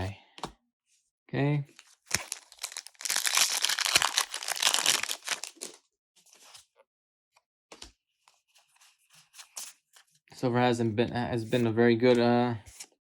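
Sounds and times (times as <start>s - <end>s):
foil wrapper tearing and crinkling: 2.1s - 5.8s.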